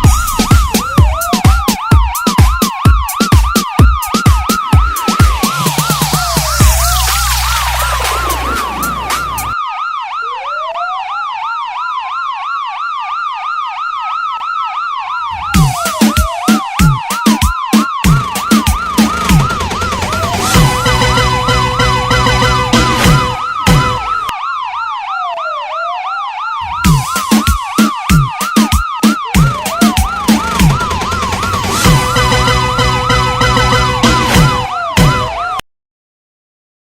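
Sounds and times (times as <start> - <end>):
pounding electronic beat: 0.0 - 9.6, 15.3 - 24.3, 26.6 - 35.4
electronic sirens yelping and wailing: 0.0 - 35.6.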